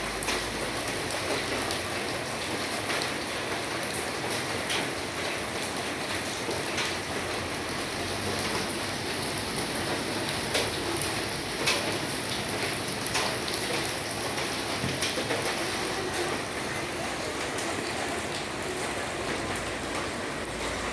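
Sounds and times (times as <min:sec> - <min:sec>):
rain falling: 0:00.0 - 0:20.9
rain drop taps: 0:08.0 - 0:16.6.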